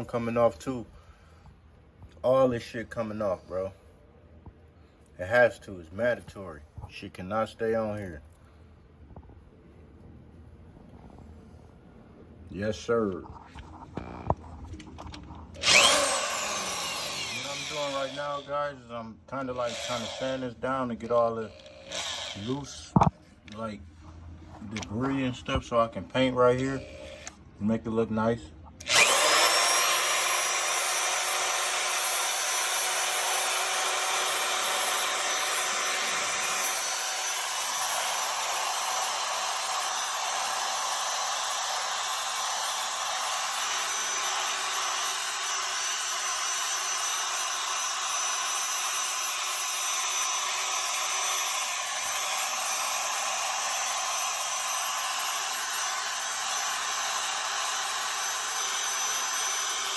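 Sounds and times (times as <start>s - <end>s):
power sander running: 15.6s - 18.5s, 19.6s - 20.4s, 21.5s - 22.5s, 28.8s - 59.9s.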